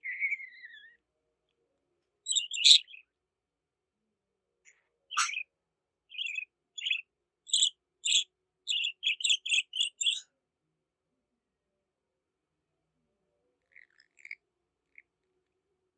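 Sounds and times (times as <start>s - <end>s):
budgerigar chirping: 0.0s - 0.9s, 2.3s - 3.0s, 5.1s - 5.4s, 6.1s - 10.2s.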